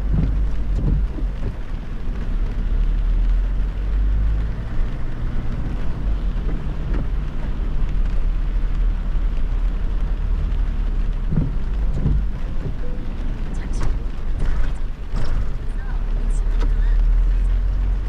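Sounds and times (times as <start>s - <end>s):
low thumps: 0.0s - 2.5s
rain: 0.0s - 18.0s
tyres on wet road: 0.0s - 18.0s.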